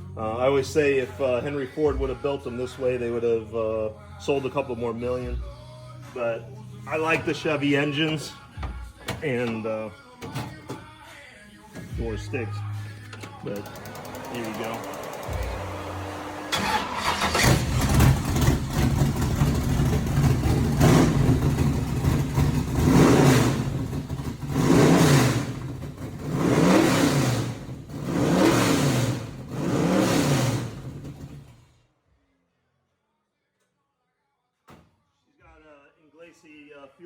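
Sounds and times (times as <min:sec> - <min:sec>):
car engine revving through loud pipes: 0:13.5 - 0:31.5.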